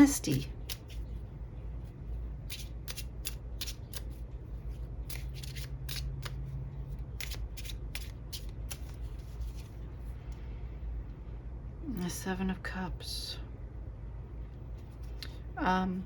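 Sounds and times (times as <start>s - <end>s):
cards snapping and flicking: 2.4s - 4.2s, 5.0s - 6.4s, 7.0s - 9.6s.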